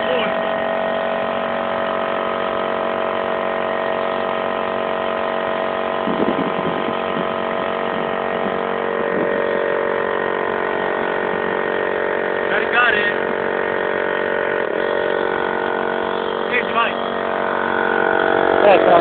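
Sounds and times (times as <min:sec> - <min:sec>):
air compressor humming: 0:00.0 - 0:19.0.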